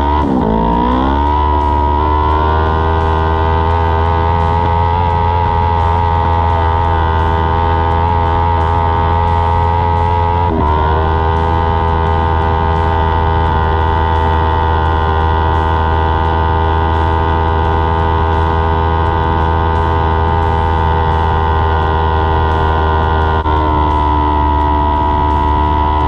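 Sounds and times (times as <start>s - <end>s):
race car engine at high revs: 0.0s - 26.0s.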